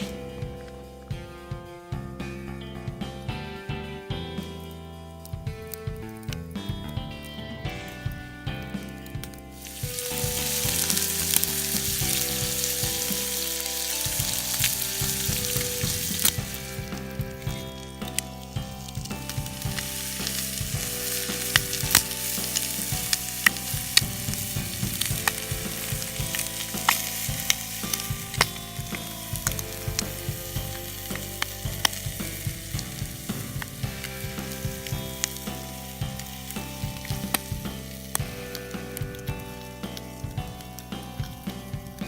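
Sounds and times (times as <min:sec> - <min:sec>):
pops and crackles: 0:08.8 - 0:41.7
food sizzling in a skillet: 0:09.6 - 0:40.0.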